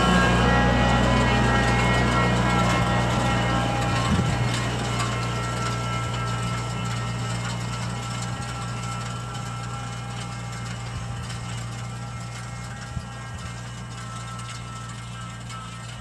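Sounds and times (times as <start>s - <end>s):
tractor engine humming: 0.0s - 16.0s.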